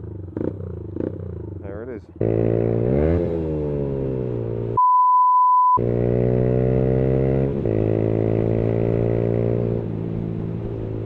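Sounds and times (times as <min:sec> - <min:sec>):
motorcycle engine running: 0:00.0 - 0:04.8
steady bleep tone: 0:04.8 - 0:05.8.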